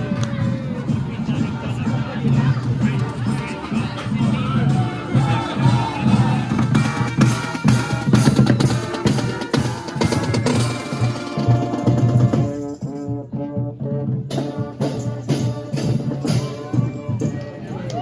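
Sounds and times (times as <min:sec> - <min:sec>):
marching drums beating: 0:00.0 - 0:18.0
pitched instrument playing a tune: 0:02.8 - 0:13.3.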